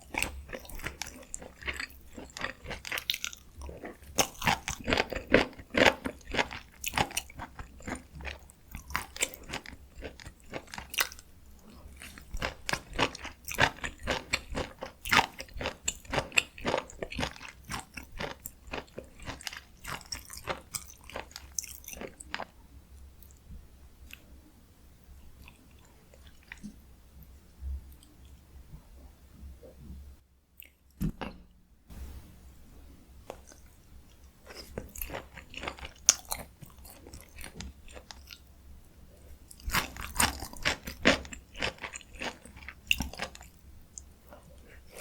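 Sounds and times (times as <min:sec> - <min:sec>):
wet crunchy chewing: 0:00.0 - 0:22.5, 0:33.3 - 0:38.5, 0:39.5 - 0:45.0.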